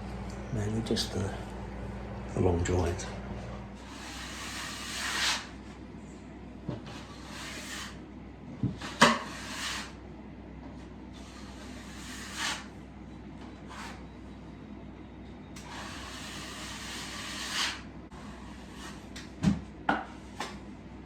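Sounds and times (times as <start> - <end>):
sanding pad rasping on plaster: 3.8 - 5.5, 7.0 - 8.0, 11.2 - 12.7, 15.7 - 19.0.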